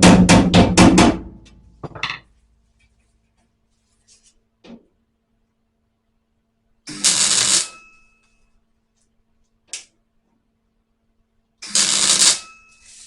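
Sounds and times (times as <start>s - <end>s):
welding crackle: 6.9s - 7.7s, 11.7s - 13.0s.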